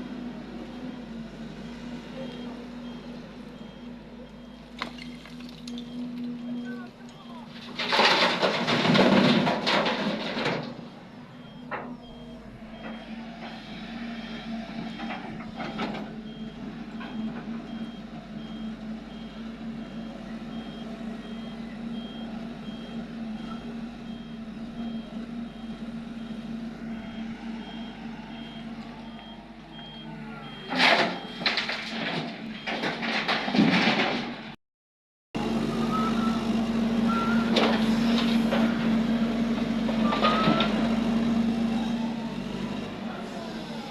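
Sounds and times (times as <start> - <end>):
diesel engine running: 0.0 - 34.6, 35.4 - 43.9
reversing alarm beeping: 0.6 - 7.5, 11.3 - 32.8, 35.6 - 37.6, 40.0 - 40.8.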